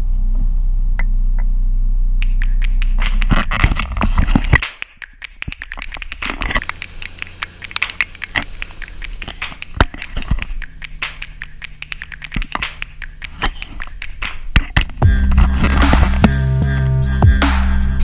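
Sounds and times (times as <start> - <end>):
low engine hum: 0.0 - 2.2.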